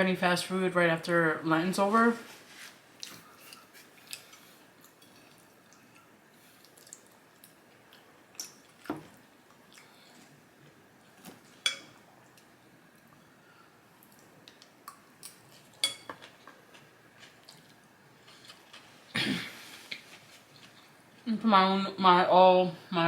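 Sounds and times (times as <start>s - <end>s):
chewing and mouth clicks: 3.0s - 10.4s.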